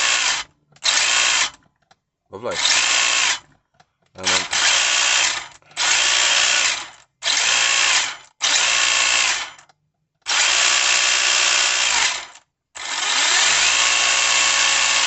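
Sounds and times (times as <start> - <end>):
electric motor whirring: 10.3 - 15.0.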